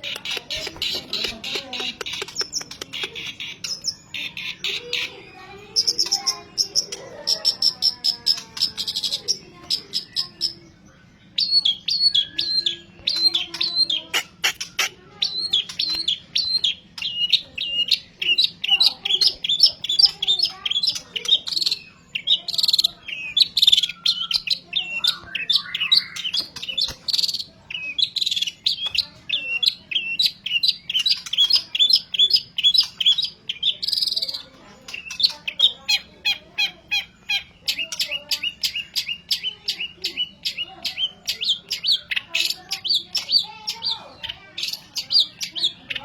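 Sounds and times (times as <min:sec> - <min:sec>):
bird singing sharp chirps: 0:11.4 - 0:36.2.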